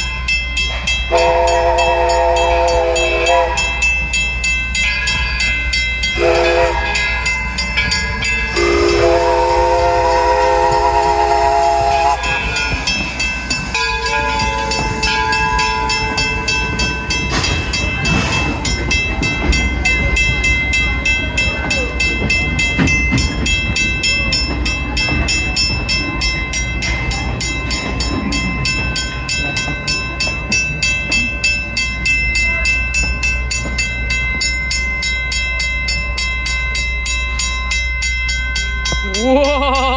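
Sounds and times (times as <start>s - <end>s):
train rhythmic clatter: 0.0s - 39.9s
steam train whistle: 1.1s - 4.0s, 6.2s - 7.2s, 8.5s - 12.7s.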